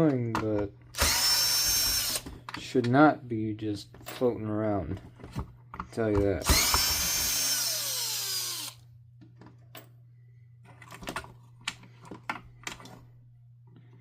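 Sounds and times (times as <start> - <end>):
power drill spinning down: 1.0 - 2.2, 6.4 - 8.8.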